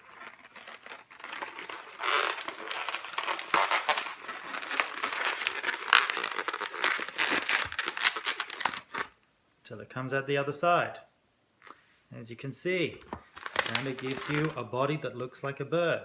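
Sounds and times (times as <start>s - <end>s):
balloon rubbing and crinkling: 0.0s - 9.1s, 13.0s - 14.6s.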